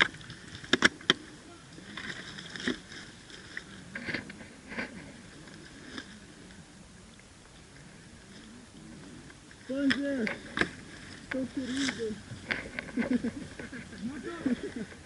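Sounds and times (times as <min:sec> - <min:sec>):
rustling: 0:07.8 - 0:15.0.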